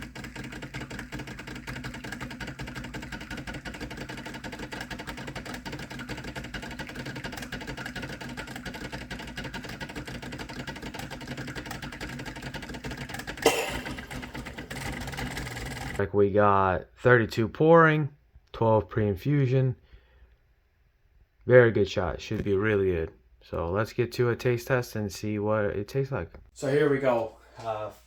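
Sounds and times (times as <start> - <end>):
espresso machine pump humming: 0.0 - 16.0.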